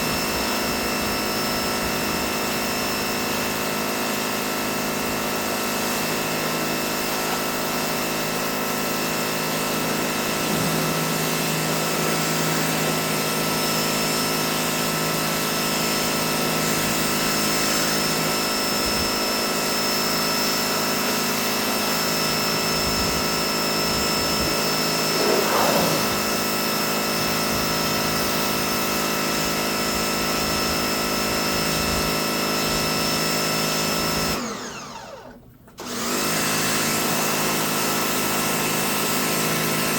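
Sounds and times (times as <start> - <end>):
pressure washer motor whine: 0.0 - 24.2, 24.8 - 32.9
water spray hissing: 25.1 - 26.6.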